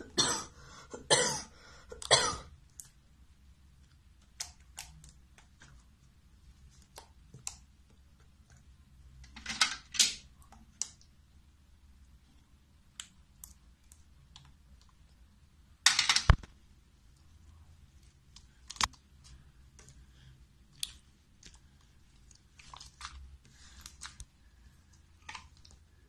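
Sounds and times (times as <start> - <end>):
slime squelching: 2.0 - 8.8, 17.1 - 26.0.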